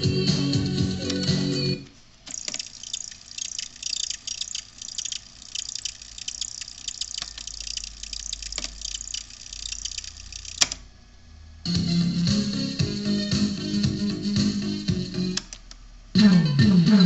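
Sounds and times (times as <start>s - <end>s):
faint low hum: 0.0s - 14.0s
radio speaker crackling: 1.1s - 10.9s
sharp click: 2.3s - 10.8s.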